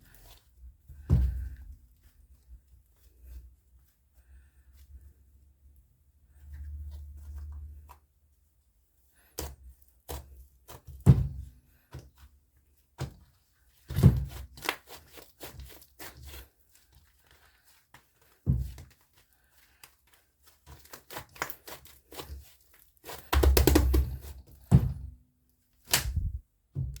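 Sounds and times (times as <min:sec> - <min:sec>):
soft thuds: 0:00.9 - 0:01.7, 0:26.0 - 0:27.0.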